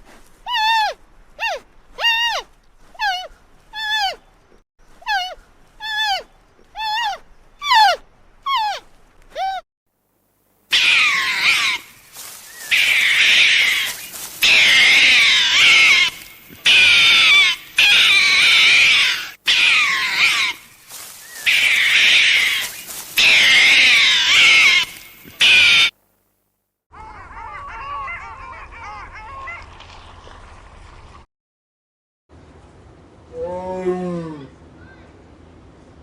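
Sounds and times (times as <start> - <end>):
animal making harsh calls: 0.5 - 4.2, 5.1 - 9.6, 10.7 - 11.9, 12.6 - 20.7, 21.3 - 25.9, 27.0 - 29.6.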